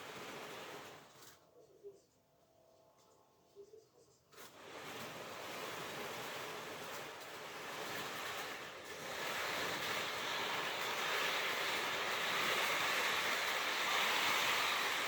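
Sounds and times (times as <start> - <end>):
model train rumbling on track: 0.0 - 1.2, 4.6 - 15.0.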